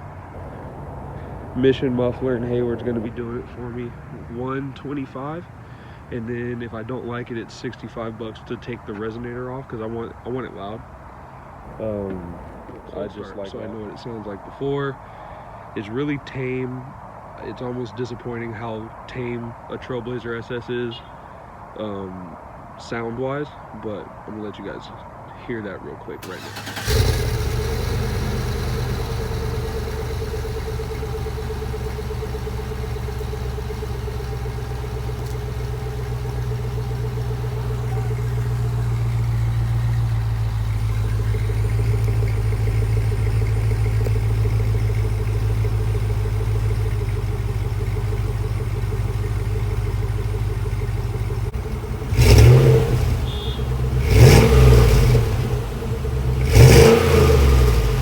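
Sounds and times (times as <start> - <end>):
car engine idling and revving: 26.2 - 58.0.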